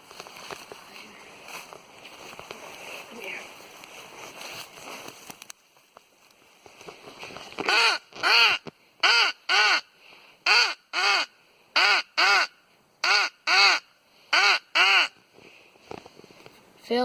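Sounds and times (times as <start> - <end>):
crow call caws: 10.5 - 15.2.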